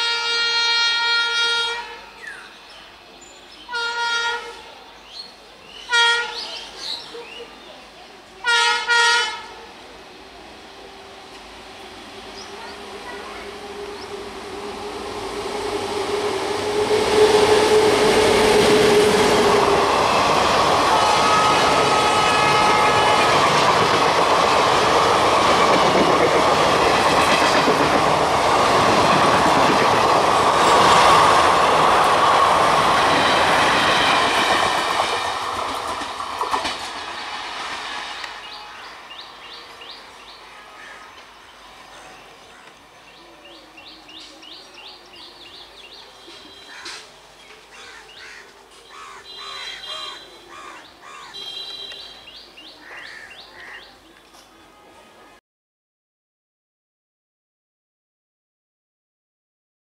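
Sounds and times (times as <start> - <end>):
train wheels clattering on rails: 21.4 - 38.9.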